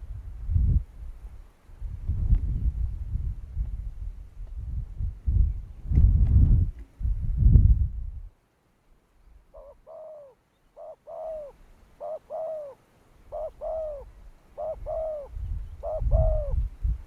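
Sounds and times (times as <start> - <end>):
dove cooing: 9.5 - 16.7.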